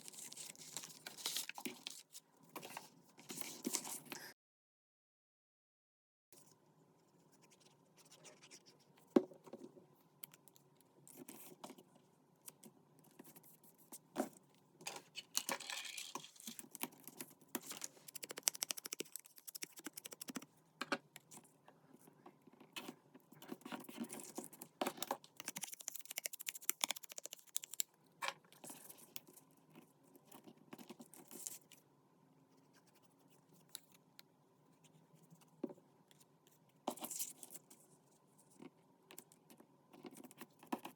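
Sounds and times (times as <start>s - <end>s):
paper scratching and rustling: 0.0s - 4.1s.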